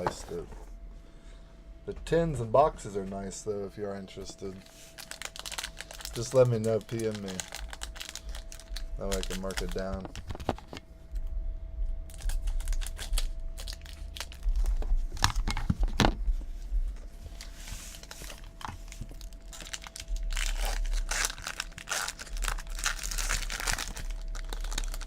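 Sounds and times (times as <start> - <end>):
wrapper crinkling and tearing: 4.4 - 10.8, 12.1 - 15.6, 17.4 - 25.0
cards rustling and clicking: 5.0 - 10.8.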